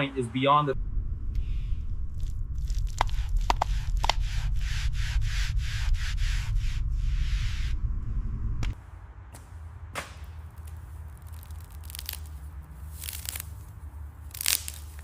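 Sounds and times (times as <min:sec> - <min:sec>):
low steady hum: 0:00.2 - 0:08.8
charred coating cracking: 0:02.1 - 0:04.2, 0:10.4 - 0:15.0.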